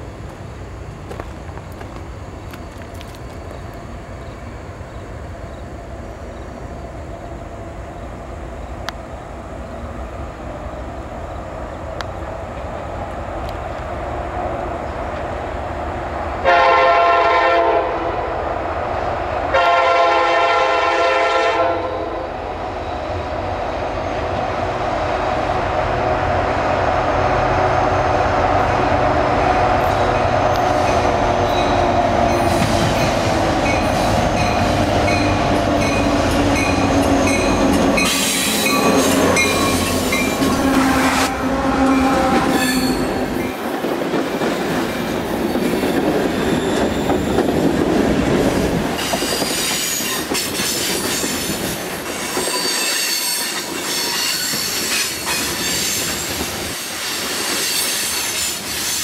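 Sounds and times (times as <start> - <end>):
diesel locomotive engine and wheels: 0.0 - 59.0
locomotive air horn blasts: 16.4 - 18.2, 19.5 - 22.2, 38.0 - 43.4.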